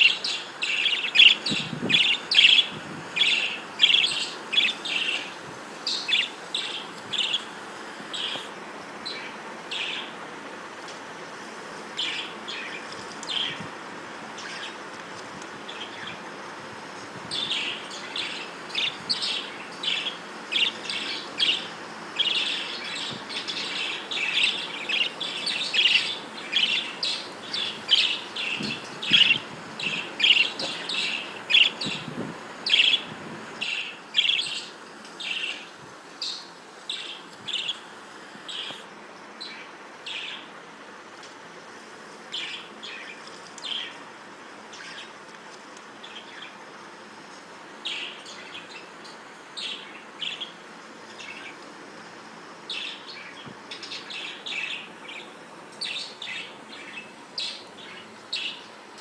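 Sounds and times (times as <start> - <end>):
budgerigars chirping: 0.0 - 7.5, 8.1 - 10.2, 12.0 - 13.6, 17.3 - 37.8, 39.4 - 40.5, 47.8 - 48.9, 52.7 - 58.7.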